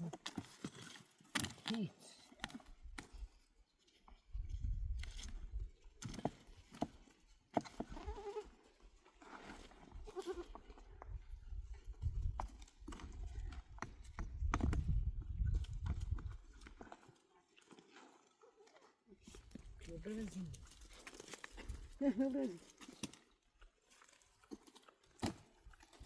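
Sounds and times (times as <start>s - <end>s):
goat bleating: 10.1s - 10.5s.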